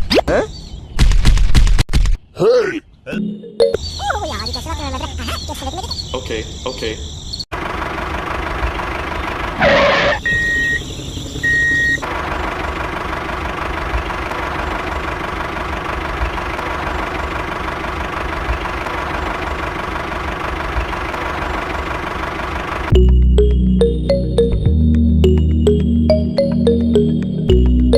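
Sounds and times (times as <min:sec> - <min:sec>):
small tractor motor running: 0:07.6 - 0:22.9
high beeps: 0:10.2 - 0:10.8.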